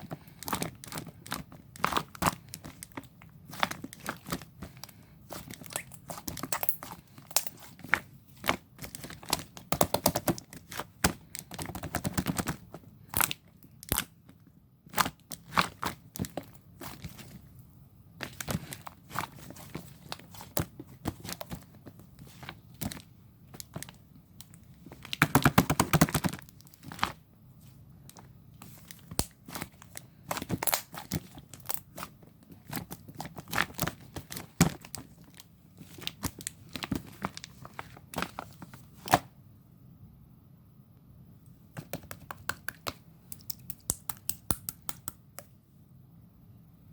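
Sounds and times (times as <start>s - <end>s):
slime clicking and popping: 41.8s - 45.5s.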